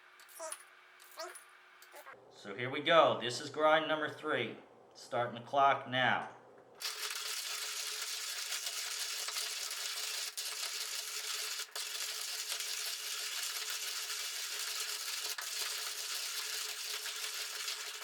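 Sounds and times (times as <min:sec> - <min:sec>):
manual coffee grinder grinding: 0:06.8 - 0:18.0.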